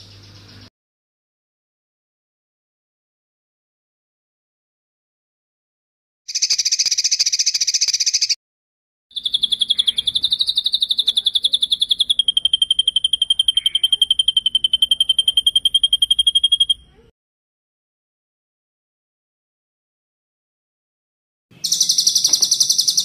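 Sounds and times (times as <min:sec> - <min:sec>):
songbird rapid high trill: 0:06.3 - 0:08.4, 0:09.1 - 0:17.0, 0:21.6 - 0:23.0.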